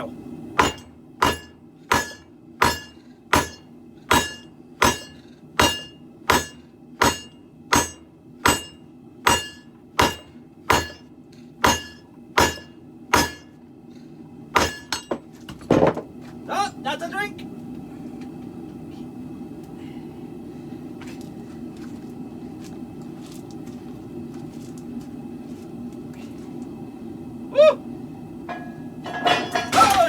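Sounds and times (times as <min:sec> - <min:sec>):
hammer striking anvil: 0:00.6 - 0:11.0, 0:11.6 - 0:13.5, 0:14.6 - 0:15.2.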